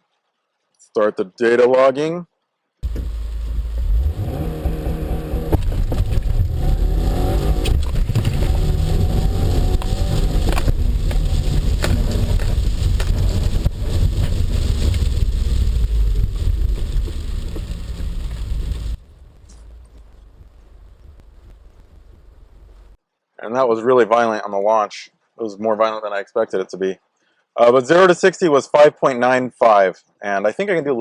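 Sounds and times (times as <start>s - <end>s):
car engine accelerating hard: 2.8s - 23.0s
wheels spinning: 2.8s - 23.0s.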